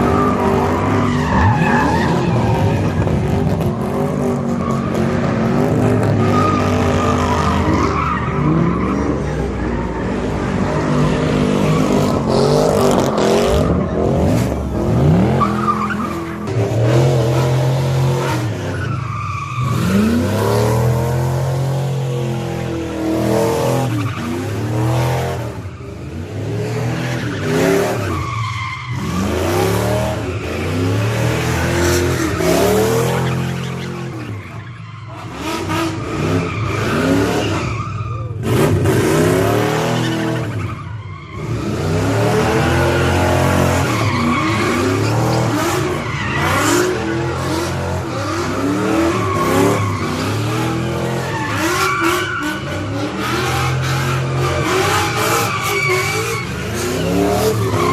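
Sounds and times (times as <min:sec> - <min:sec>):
tyres screeching: 0:42.6 - 0:57.9.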